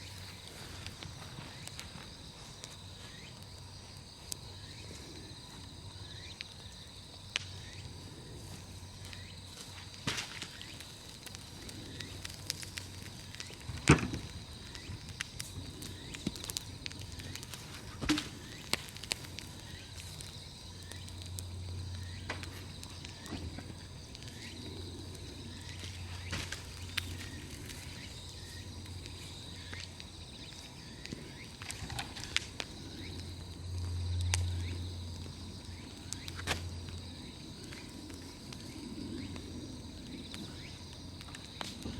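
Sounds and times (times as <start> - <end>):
bonfire crackling and popping: 0.0 - 41.9.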